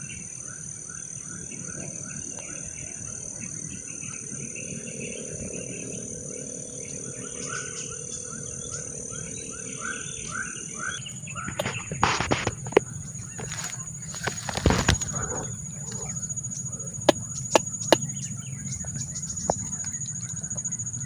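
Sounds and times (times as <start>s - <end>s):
bird chirping: 7.1s - 21.0s
high-pitched hum: 11.0s - 21.0s
rustling and brushing: 11.5s - 16.3s.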